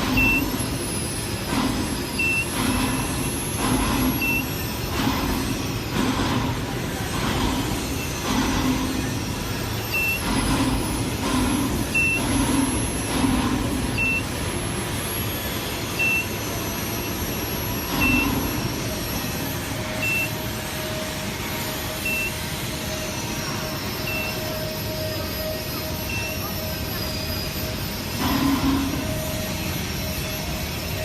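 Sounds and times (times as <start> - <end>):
machinery and work-site noise: 0.0 - 31.0
short high electronic beep: 0.1 - 0.6, 20.0 - 20.4, 22.0 - 22.4, 24.0 - 24.5.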